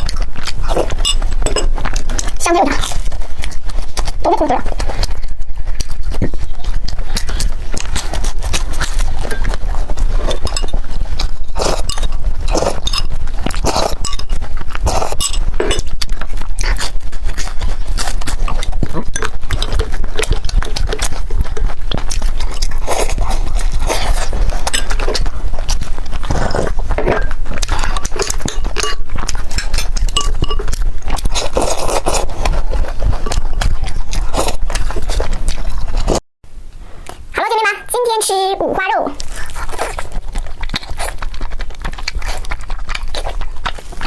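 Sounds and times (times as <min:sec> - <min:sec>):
chewing and crunching: 0:00.0 - 0:36.2, 0:38.9 - 0:44.0
mouth noises: 0:02.3 - 0:02.9, 0:37.0 - 0:39.3.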